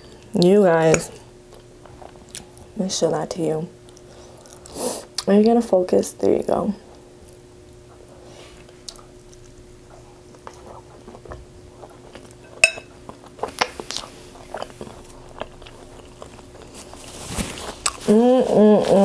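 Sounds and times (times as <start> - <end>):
chewing and wet mouth sounds: 0.2 - 2.7, 3.8 - 5.6, 8.6 - 18.1
metal fork clinking on glass bowl: 12.5 - 12.9
paper napkin rustling: 16.6 - 19.0.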